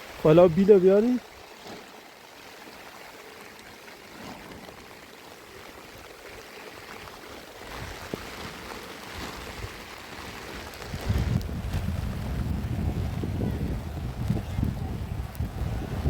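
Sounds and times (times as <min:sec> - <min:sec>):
rain falling: 0:00.0 - 0:16.0
wind rumble on microphone: 0:09.2 - 0:16.0.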